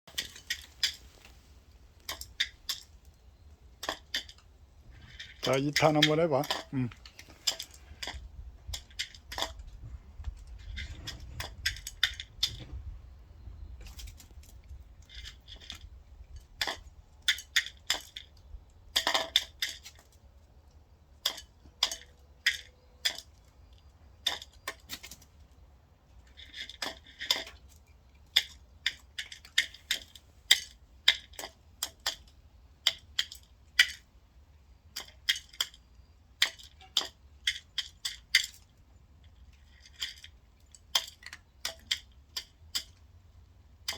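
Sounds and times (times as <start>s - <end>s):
beak pecking at a dish: 13.7s - 43.9s.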